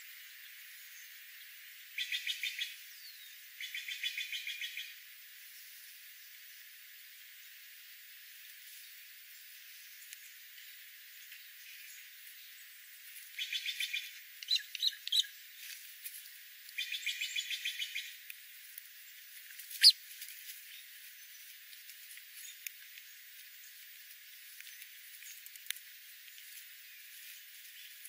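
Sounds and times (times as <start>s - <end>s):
faint hiss: 0.0s - 28.0s
small birds chirping: 0.4s - 5.0s, 8.7s - 28.0s.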